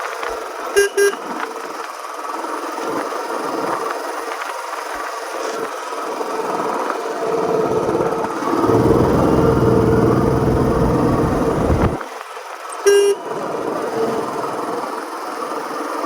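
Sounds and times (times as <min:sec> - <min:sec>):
short horn beeps: 0:00.8 - 0:01.2, 0:12.9 - 0:13.2
steady rasping noise: 0:08.4 - 0:12.0.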